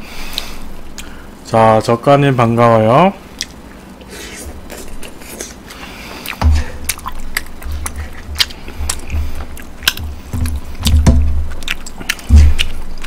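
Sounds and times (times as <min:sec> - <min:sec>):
chewing with wet mouth clicks: 0:03.3 - 0:04.1, 0:04.7 - 0:13.0
deep irregular thumps: 0:06.4 - 0:07.0, 0:07.6 - 0:13.0.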